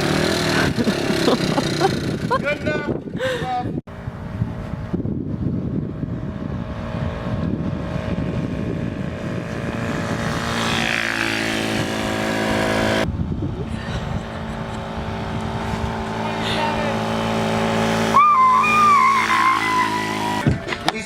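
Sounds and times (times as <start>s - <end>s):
motorcycle engine revving: 0.0s - 2.9s, 3.9s - 21.0s.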